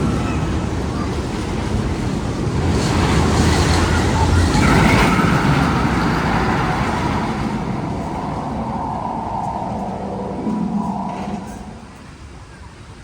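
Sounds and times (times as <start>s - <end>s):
loud steady tunnel rumble: 0.0s - 12.8s.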